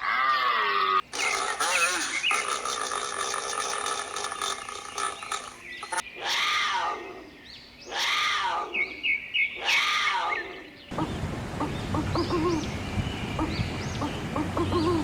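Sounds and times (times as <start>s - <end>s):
other animal sounds: 0.0s - 15.0s
animal call rising and falling: 9.6s - 15.0s.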